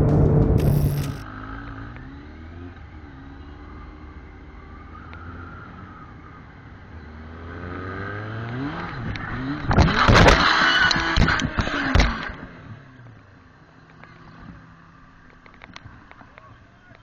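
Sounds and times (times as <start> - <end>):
motorcycle engine revving: 0.0 - 13.1.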